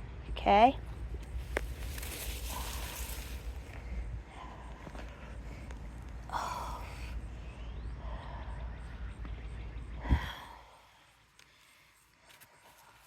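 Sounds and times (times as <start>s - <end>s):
rustling handling noise: 1.2s - 3.8s.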